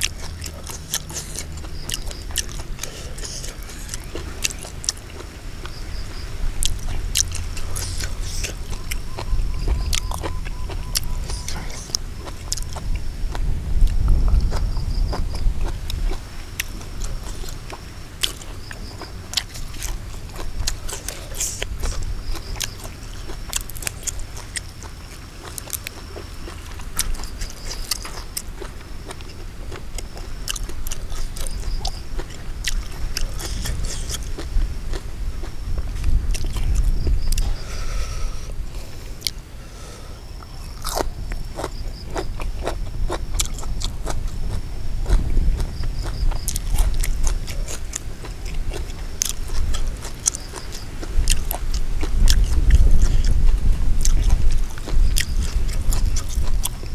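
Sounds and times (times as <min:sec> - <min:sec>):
man chewing and biting: 0:00.0 - 0:39.5, 0:40.3 - 0:56.9
wet mouth clicks: 0:06.6 - 0:15.3, 0:29.1 - 0:35.0.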